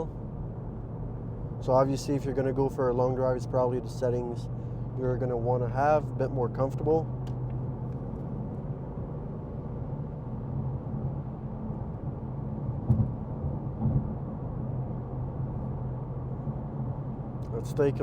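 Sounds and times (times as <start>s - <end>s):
car engine low drone: 0.0s - 18.0s
road noise: 0.0s - 18.0s
brief thumps: 12.8s - 13.2s.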